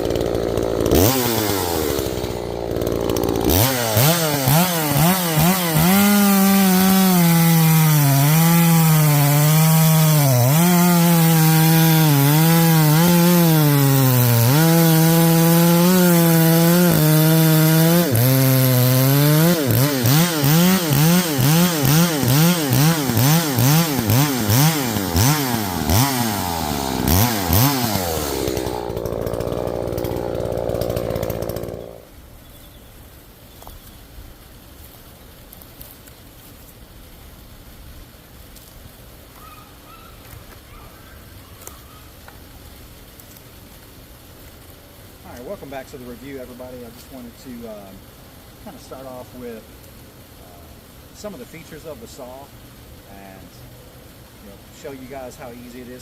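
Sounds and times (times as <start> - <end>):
chainsaw cutting wood: 0.0 - 32.1.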